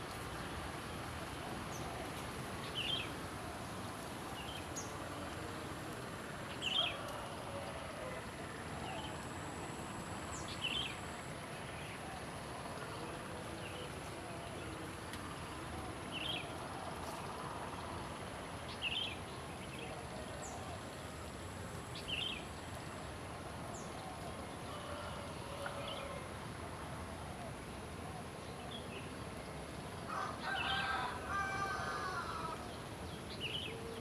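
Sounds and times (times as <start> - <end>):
background hiss: 0.0 - 34.0.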